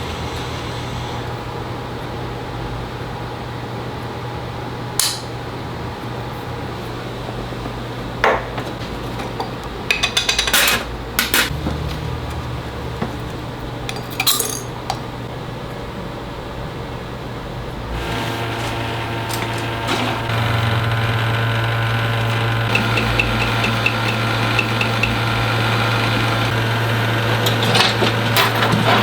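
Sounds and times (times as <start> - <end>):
low machine hum: 0.0 - 8.2, 11.0 - 29.0
metal tools clinking on bench: 13.9 - 15.0.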